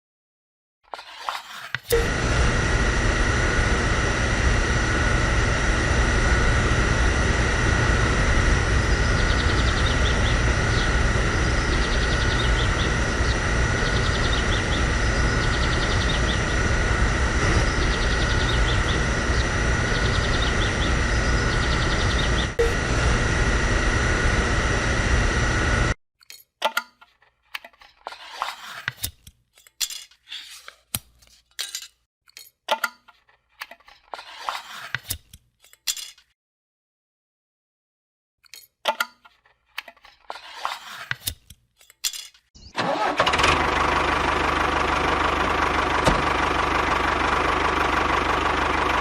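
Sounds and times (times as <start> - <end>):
machine running with high whine: 1.9 - 26.0, 43.1 - 49.0.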